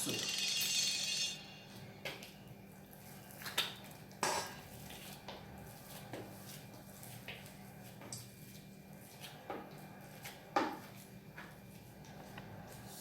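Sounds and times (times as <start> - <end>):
utensils clinking against bowl: 0.0 - 1.5.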